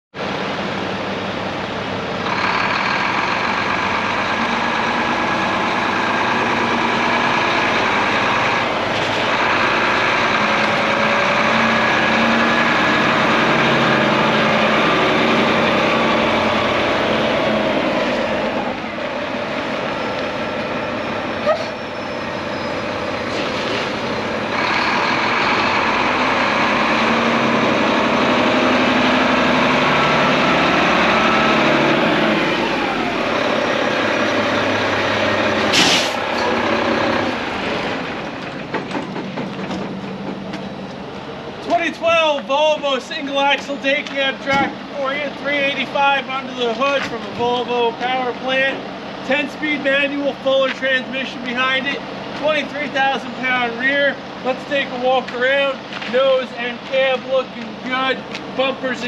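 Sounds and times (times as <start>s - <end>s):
heavy diesel engine running: 0.2s - 59.0s
sharp hiss or click: 35.7s - 36.2s.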